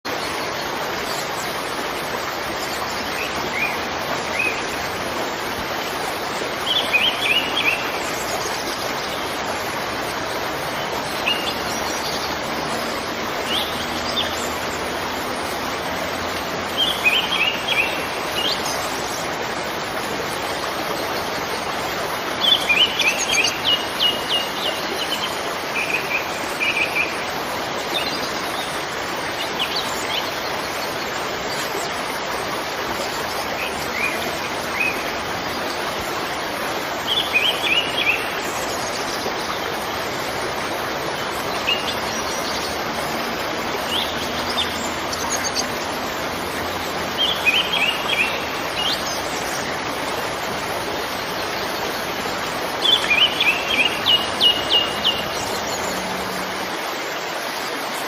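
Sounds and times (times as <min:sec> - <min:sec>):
waterfall rushing: 0:00.0 - 0:58.0
small birds chirping: 0:37.0 - 0:56.8.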